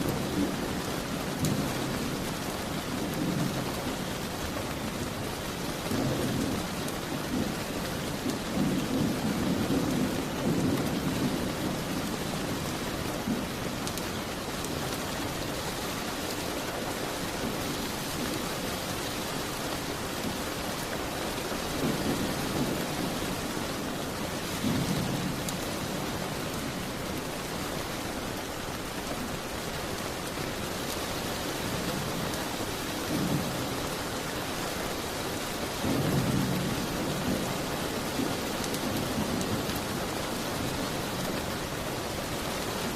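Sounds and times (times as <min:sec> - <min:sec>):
heavy rain hissing: 0:00.0 - 0:42.9.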